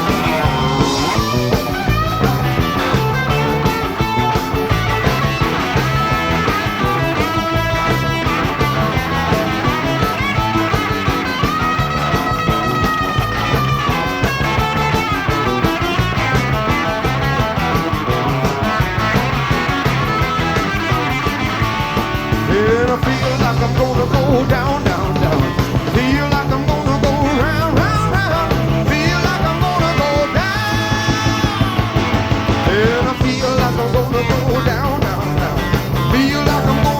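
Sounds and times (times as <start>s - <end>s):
lead guitar bending notes: 0.0s - 36.9s
live rock band playing: 0.0s - 36.9s.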